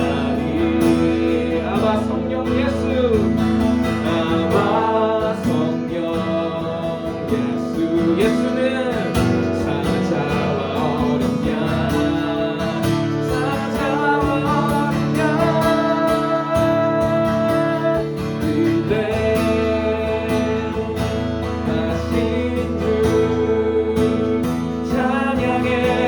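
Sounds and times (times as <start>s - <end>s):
acoustic guitar strumming: 0.0s - 26.0s
person singing: 0.0s - 26.0s.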